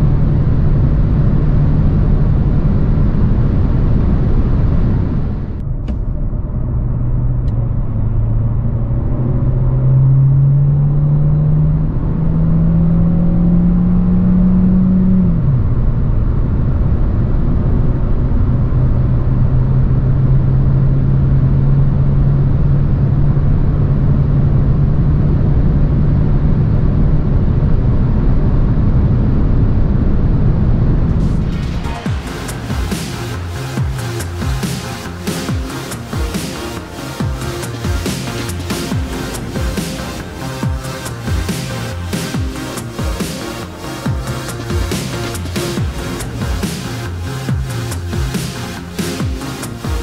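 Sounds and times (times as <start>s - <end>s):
car engine accelerating hard: 0.0s - 50.0s
road and wind noise: 0.0s - 50.0s.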